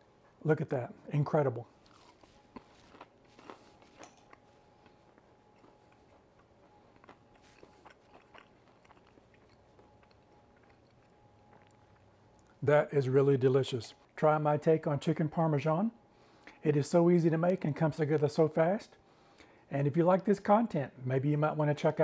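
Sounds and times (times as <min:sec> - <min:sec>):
chewing crunchy food: 0:01.8 - 0:12.6.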